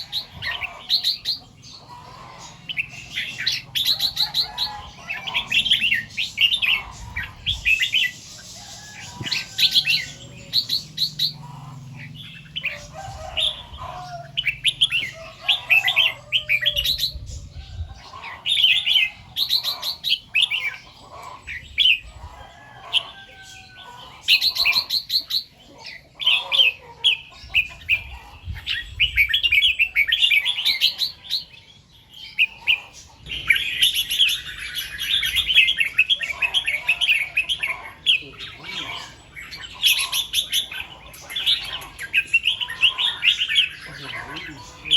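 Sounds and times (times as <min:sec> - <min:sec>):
bird singing chirpy phrases: 0:23.6 - 0:44.9.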